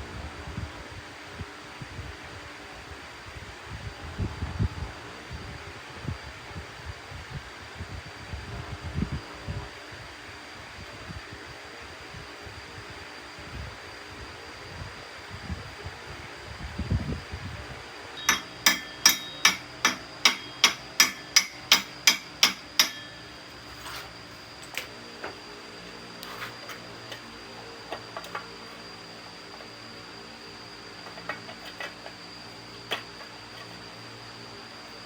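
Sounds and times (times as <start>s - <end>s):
hammer striking metal: 18.2s - 23.4s.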